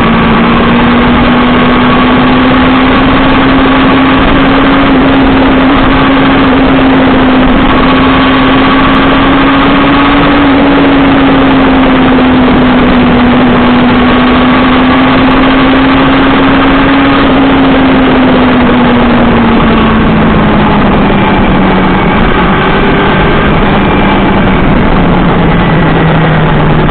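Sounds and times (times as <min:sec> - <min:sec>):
motorcycle engine cruising: 0:00.0 - 0:26.9
wind rush on microphone: 0:00.0 - 0:26.9.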